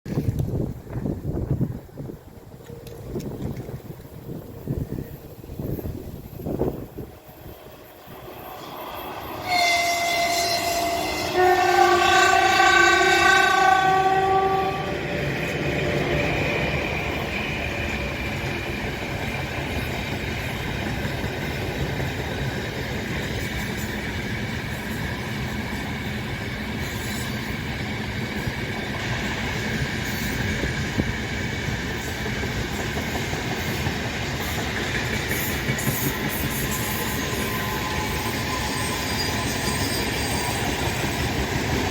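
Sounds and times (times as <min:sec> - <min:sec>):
train wagons rolling past: 0:00.1 - 0:41.9
locomotive horn blasts: 0:09.4 - 0:15.0.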